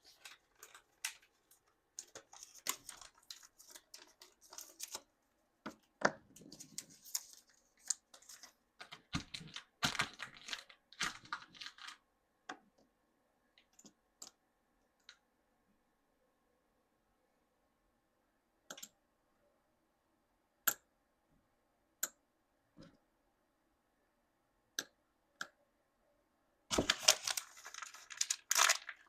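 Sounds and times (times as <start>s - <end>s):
plastic packaging crinkling and tearing: 0.0s - 5.0s, 6.4s - 12.0s, 26.7s - 29.0s.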